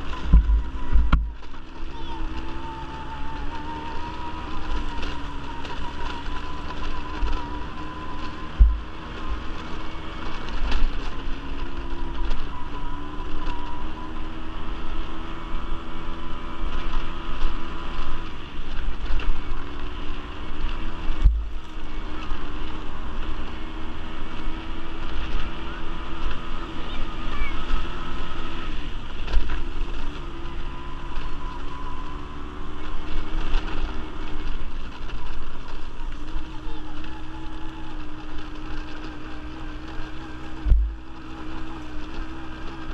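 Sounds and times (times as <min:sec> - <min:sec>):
wind buffeting microphone: 0:00.0 - 0:13.8, 0:33.2 - 0:42.9
quad bike engine running: 0:00.0 - 0:42.9.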